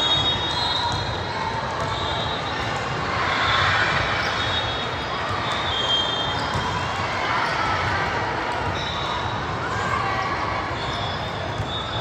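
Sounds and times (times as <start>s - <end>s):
sneaker squeaks: 0.0s - 6.8s, 8.6s - 10.0s, 10.6s - 12.0s.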